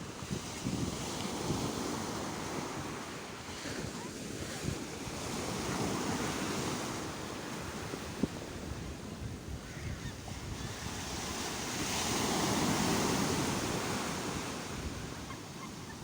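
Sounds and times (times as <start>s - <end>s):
wind buffeting microphone: 0.0s - 15.9s
sea waves washing in: 10.4s - 16.0s.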